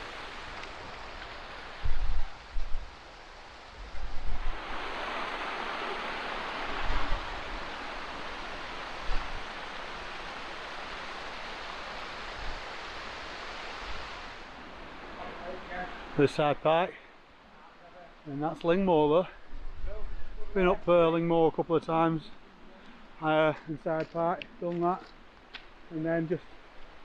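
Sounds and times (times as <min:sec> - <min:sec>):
wind buffeting microphone: 0:00.0 - 0:14.4
stream rushing over rocks: 0:00.0 - 0:19.1.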